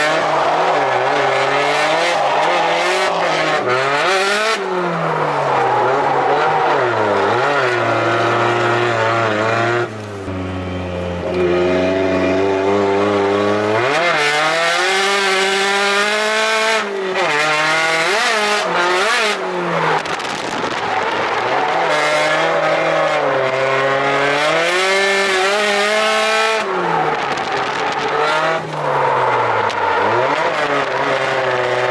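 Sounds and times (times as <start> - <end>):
car engine revving: 0.0 - 31.9.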